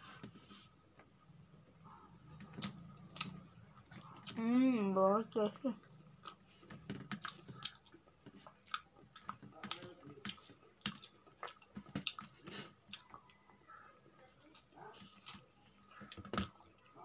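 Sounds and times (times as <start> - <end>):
person chewing and lip-smacking: 2.4 - 4.4, 5.8 - 6.4, 7.0 - 13.3.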